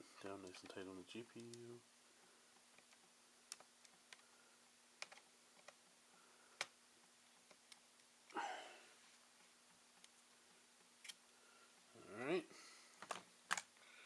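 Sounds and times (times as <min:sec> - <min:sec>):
faint steady hum: 0:00.0 - 0:14.0
small parts clicking and tapping: 0:02.5 - 0:04.3, 0:05.0 - 0:05.8.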